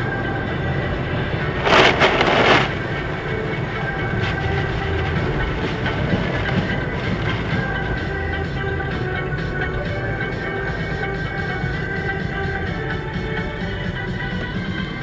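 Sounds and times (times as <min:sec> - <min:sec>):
vehicle rumble: 0:00.0 - 0:15.0
loud crash: 0:01.6 - 0:02.9.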